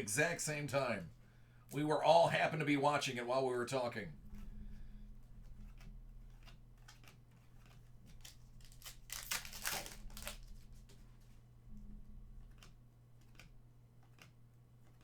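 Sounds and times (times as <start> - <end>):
cards and wrapper rustling: 5.7 - 11.1.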